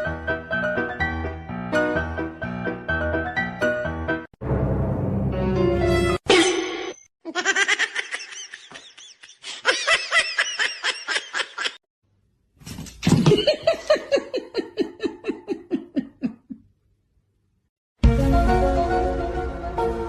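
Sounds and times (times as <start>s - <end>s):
person laughing hard: 7.2s - 11.8s, 13.2s - 16.6s.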